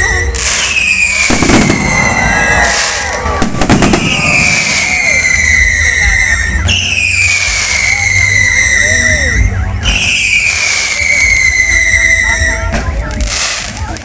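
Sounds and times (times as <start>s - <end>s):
high whistling tone: 0.0s - 12.9s
faint voices: 0.0s - 14.0s
fireworks crackling bangs: 0.0s - 14.0s.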